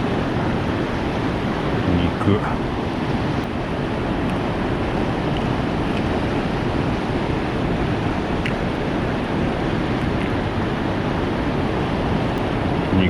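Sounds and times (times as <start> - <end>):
rushing outdoor noise: 0.0 - 13.0.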